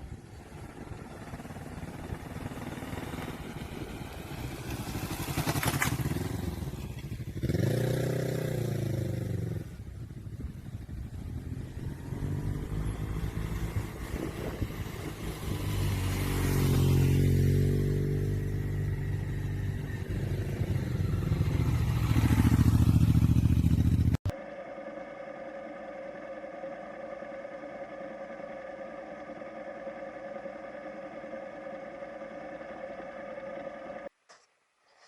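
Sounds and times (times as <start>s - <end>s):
motorcycle engine revving: 0.1s - 24.3s
steady hum: 24.3s - 34.1s.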